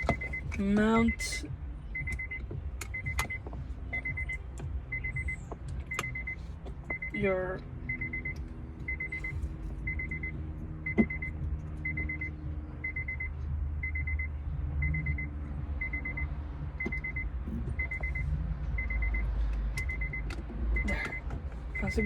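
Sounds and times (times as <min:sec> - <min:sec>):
car warning chime beeping: 0:00.0 - 0:22.0
steady low rumble: 0:00.0 - 0:22.0.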